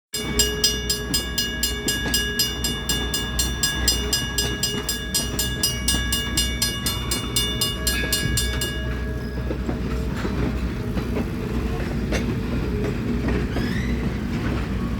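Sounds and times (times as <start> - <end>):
rapid regular ringing: 0.1 - 10.9
train engine rumble: 0.2 - 14.9.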